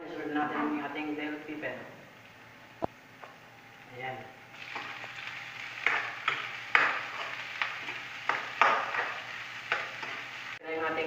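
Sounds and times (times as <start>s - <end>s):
vegetables sizzling in hot oil: 4.5s - 10.6s
spatula scraping and knocking pan: 4.6s - 10.4s.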